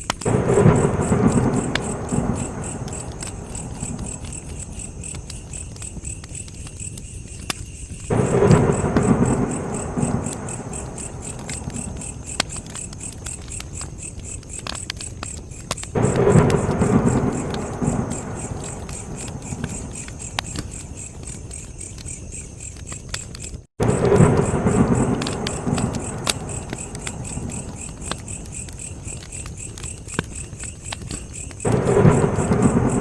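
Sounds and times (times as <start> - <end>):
campfire crackling and popping: 0.0 - 33.0
crickets chirping: 0.0 - 33.0
low rumble: 0.3 - 5.0, 8.1 - 12.7.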